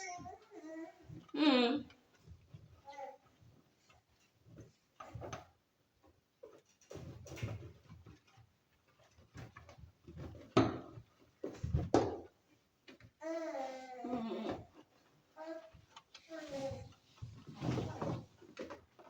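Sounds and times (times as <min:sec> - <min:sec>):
knocks and clatters: 0:02.0 - 0:13.2.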